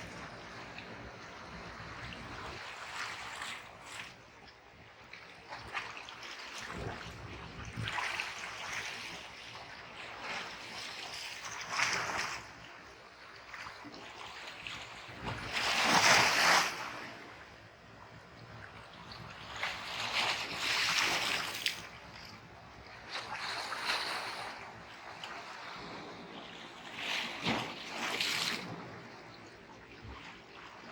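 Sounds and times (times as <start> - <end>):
waves breaking on shore: 23.0 - 29.4.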